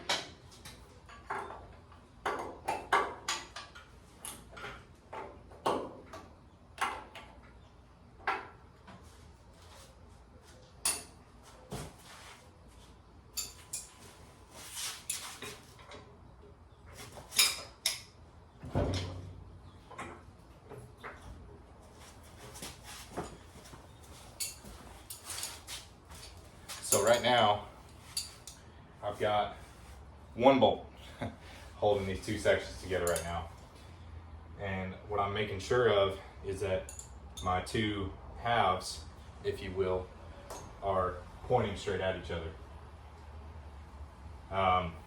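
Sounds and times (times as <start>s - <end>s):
wrench clinking on bolts: 26.8s - 27.4s, 33.0s - 33.4s.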